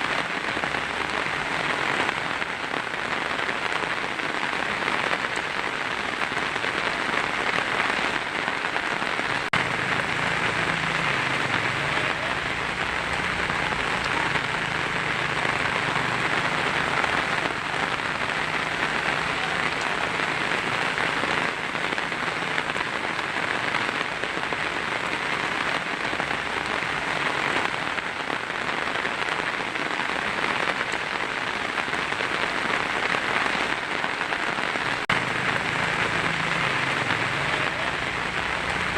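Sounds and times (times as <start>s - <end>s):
heavy rain on a tin roof: 0.0s - 38.9s.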